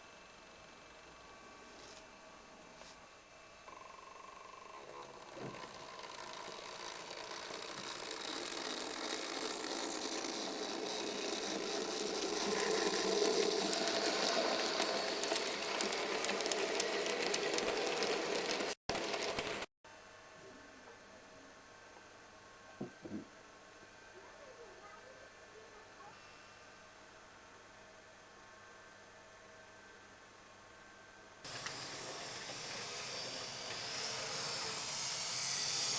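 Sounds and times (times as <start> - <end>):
model train motor whirring: 3.7 - 19.7, 31.5 - 35.9
wheels clicking over track: 4.8 - 19.7.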